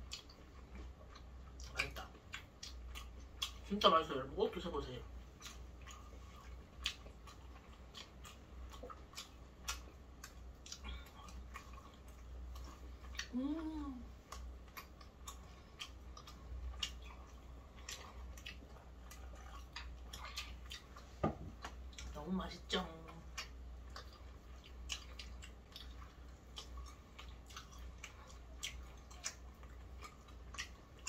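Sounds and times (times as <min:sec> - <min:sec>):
crunchy chewing: 0:00.0 - 0:13.4, 0:14.0 - 0:22.2, 0:23.0 - 0:31.0
low steady hum: 0:00.0 - 0:31.0
person humming mmm: 0:13.2 - 0:14.1.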